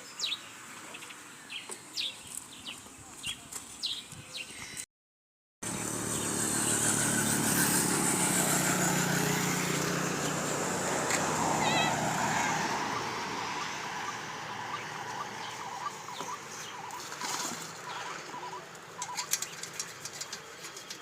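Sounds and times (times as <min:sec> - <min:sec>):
birds chirping: 0:00.0 - 0:04.8, 0:05.6 - 0:07.7, 0:09.0 - 0:21.0
motorbike engine running: 0:05.6 - 0:13.1.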